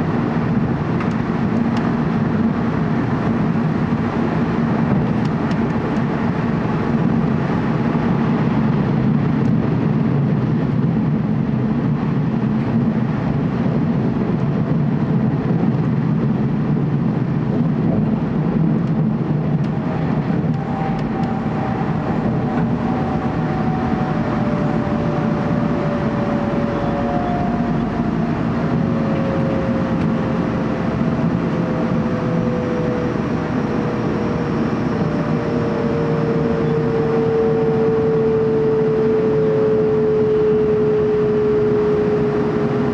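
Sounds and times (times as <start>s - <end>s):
train car low rumble: 0.0s - 42.9s
faint falling whine: 19.2s - 42.6s.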